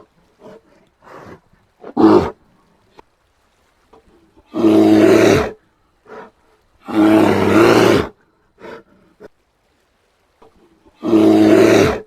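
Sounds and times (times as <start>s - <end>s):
bear roaring: 0.0s - 2.4s, 4.4s - 8.9s, 11.0s - 12.0s.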